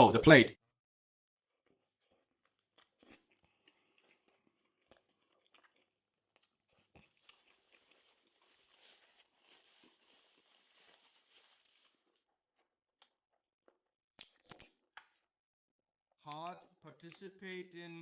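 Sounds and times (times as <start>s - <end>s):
person chewing: 1.5s - 11.2s.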